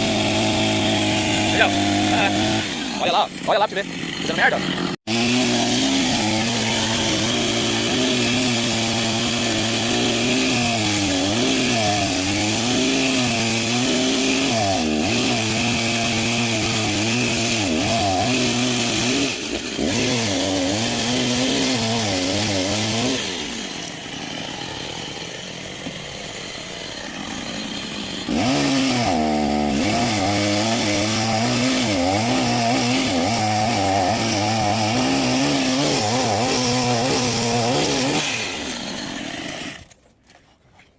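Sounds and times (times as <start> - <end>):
chainsaw cutting wood: 0.0 - 40.0.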